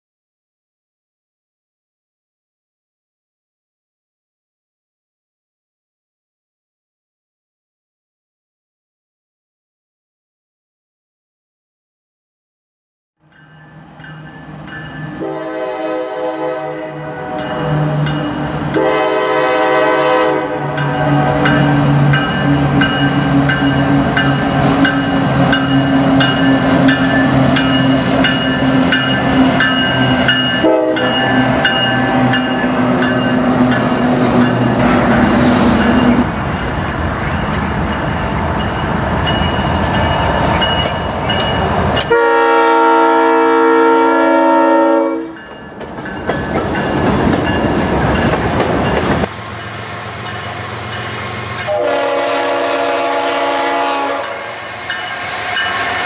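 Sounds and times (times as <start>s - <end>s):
crossing bell ringing: 13.2s - 15.8s, 16.4s - 19.4s, 20.5s - 42.7s, 44.7s - 52.2s, 54.1s - 56.0s
locomotive air horn: 15.2s - 17.7s, 18.8s - 21.6s, 30.6s - 32.4s, 42.1s - 45.4s, 51.6s - 54.6s
train wheels on rails: 16.6s - 42.2s, 44.8s - 56.0s.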